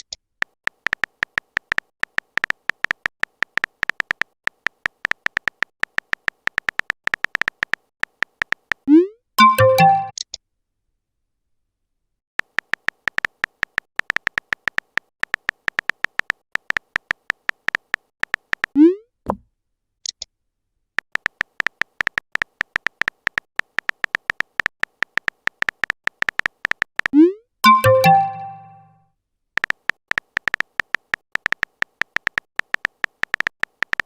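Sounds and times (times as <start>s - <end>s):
typing beep clicks: 8.9s - 10.3s, 22.8s - 28.9s.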